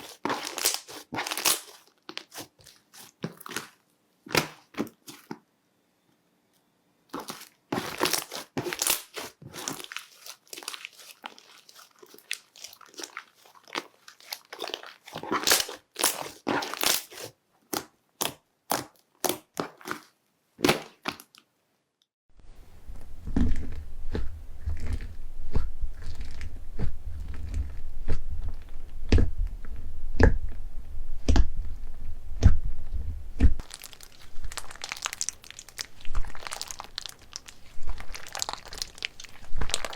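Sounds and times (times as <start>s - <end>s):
slime squished by hand: 0.0s - 5.3s, 7.1s - 21.3s, 33.4s - 39.9s
low rumble: 22.4s - 33.6s.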